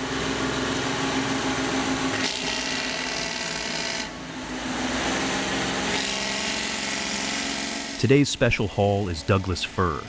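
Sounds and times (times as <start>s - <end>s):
truck diesel engine droning: 6.8s - 10.0s.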